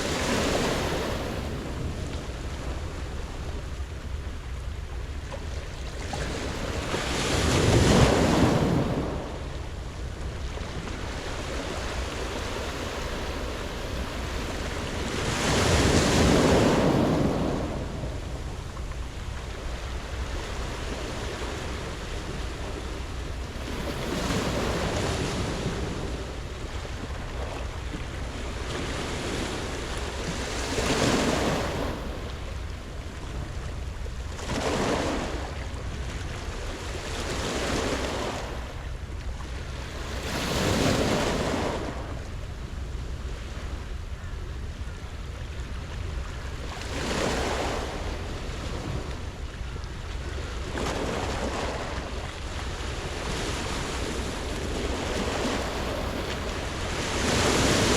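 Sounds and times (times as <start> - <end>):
waves breaking on pebble beach: 6.1 - 9.2, 11.0 - 18.0, 34.5 - 35.5, 39.9 - 42.1, 46.8 - 49.2, 52.8 - 57.9.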